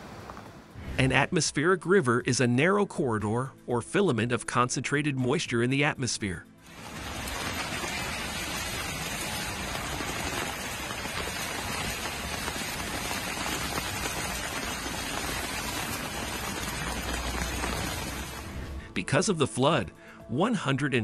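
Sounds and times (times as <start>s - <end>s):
heavy rain splashing on pavement: 6.7s - 18.7s.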